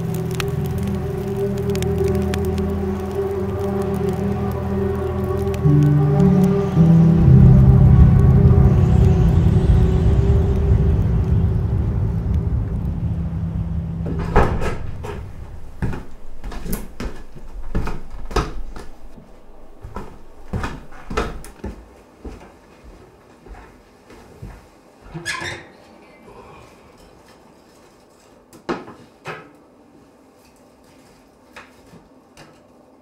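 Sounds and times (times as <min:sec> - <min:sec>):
low droning score: 0:00.0 - 0:21.6
knocks clicks and creaks: 0:08.2 - 0:21.6.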